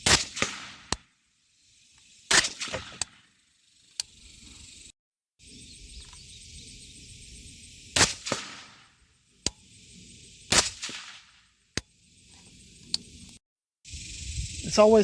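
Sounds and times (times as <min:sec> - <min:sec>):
suppressed rifle shots: 0:00.0 - 0:01.1, 0:02.3 - 0:03.2, 0:08.0 - 0:09.6, 0:10.5 - 0:11.4.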